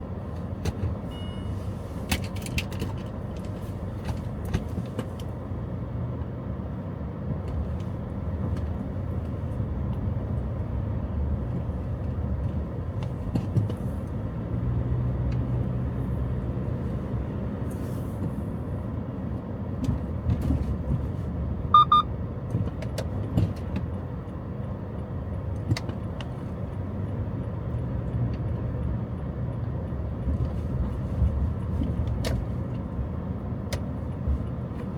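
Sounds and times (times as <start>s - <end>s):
motor vehicle rumble: 0.0s - 34.9s
electronic double beep: 21.8s - 22.1s.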